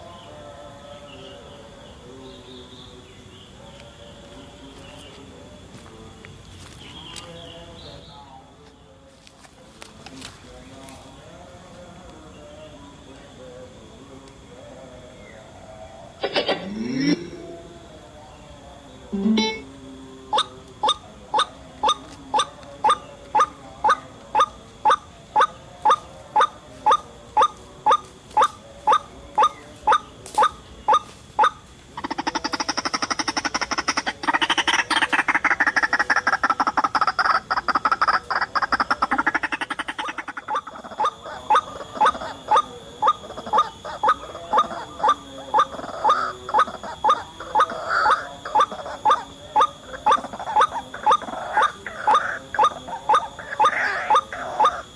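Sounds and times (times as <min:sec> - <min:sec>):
waterhen calling: 0:20.3 - 0:54.9.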